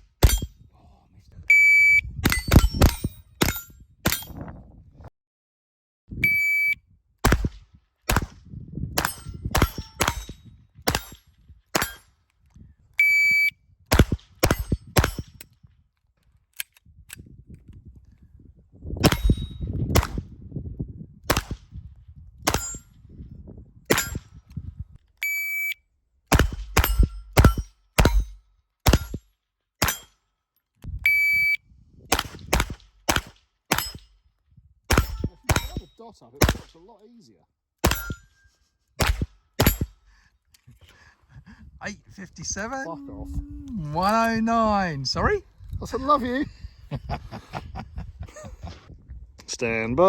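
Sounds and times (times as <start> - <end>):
bullets pinging on steel plates: 0.2 - 0.6, 9.0 - 12.1, 22.5 - 22.9, 23.9 - 24.3, 26.5 - 29.2, 29.8 - 30.2, 33.7 - 34.2, 34.9 - 36.8, 37.8 - 38.5, 39.6 - 40.0
shot timer beeps: 1.5 - 2.4, 6.2 - 6.8, 13.0 - 13.5, 25.2 - 25.8, 31.1 - 31.6
rifle gunshots: 7.2 - 8.4, 10.9 - 11.2, 13.9 - 15.4, 19.0 - 20.2, 21.3 - 21.6, 26.3 - 29.2, 32.1 - 34.0, 34.9 - 36.8, 39.0 - 39.9.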